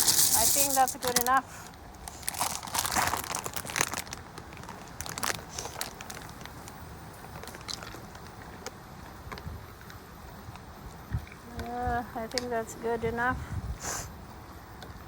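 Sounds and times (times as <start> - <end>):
dry pasta clicking: 0.0 - 1.4
plastic bag crinkling: 0.0 - 1.4, 2.0 - 8.3
wind rumble on microphone: 9.2 - 9.8, 10.5 - 14.3.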